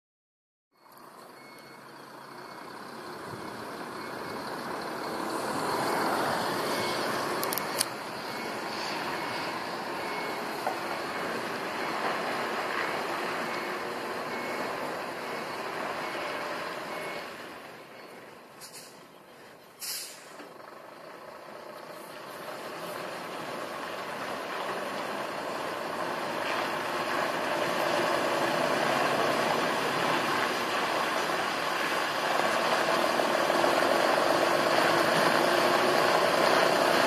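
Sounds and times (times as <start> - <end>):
truck diesel engine: 0.8 - 37.0
high warning beeps: 6.6 - 12.0.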